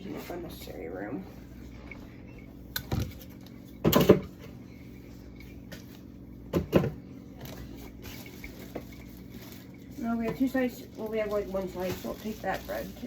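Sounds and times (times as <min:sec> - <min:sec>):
containers clattering in refrigerator: 0:01.9 - 0:04.6, 0:06.5 - 0:13.0.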